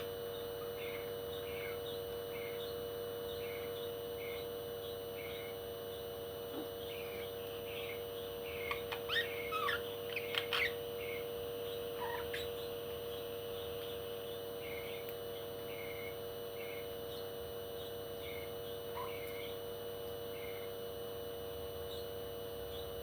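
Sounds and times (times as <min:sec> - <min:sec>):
steady low hum: 0:00.0 - 0:23.0
parrot chirping: 0:08.6 - 0:11.2, 0:12.0 - 0:12.7.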